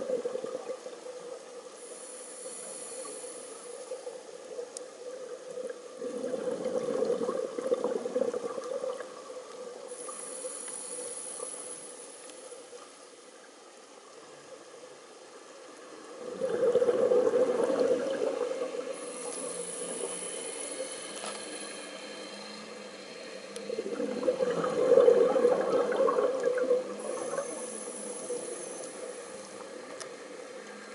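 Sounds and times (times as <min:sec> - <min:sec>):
regulator inhalation hiss: 0:01.8 - 0:04.1, 0:09.9 - 0:12.6, 0:18.8 - 0:23.8, 0:27.0 - 0:29.7
diver exhaling bubbles: 0:06.0 - 0:09.0, 0:16.2 - 0:20.1.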